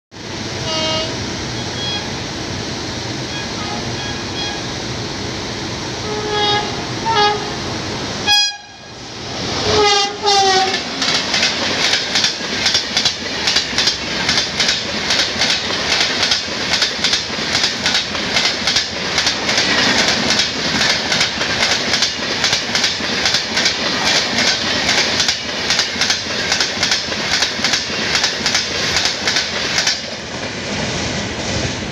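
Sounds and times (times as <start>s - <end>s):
locomotive horn blasts: 0.6s - 2.2s, 3.3s - 4.8s, 6.0s - 9.0s, 9.6s - 11.0s
train wheels clattering over rail joints: 9.7s - 31.9s.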